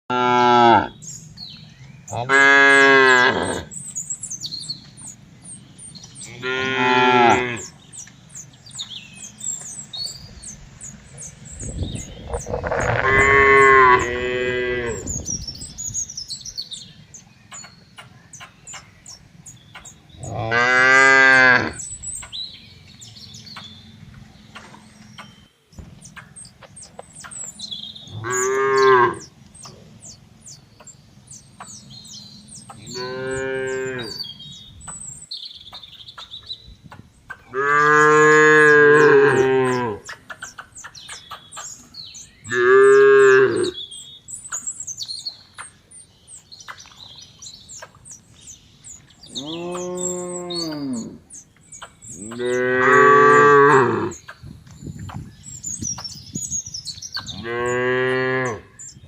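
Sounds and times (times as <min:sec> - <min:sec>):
cattle mooing: 0:00.1 - 0:01.0, 0:02.2 - 0:03.7, 0:06.2 - 0:07.7, 0:12.3 - 0:15.1, 0:20.2 - 0:21.8, 0:28.2 - 0:29.2, 0:32.8 - 0:34.2, 0:37.5 - 0:40.0, 0:52.2 - 0:54.2
small birds chirping: 0:00.4 - 0:59.0.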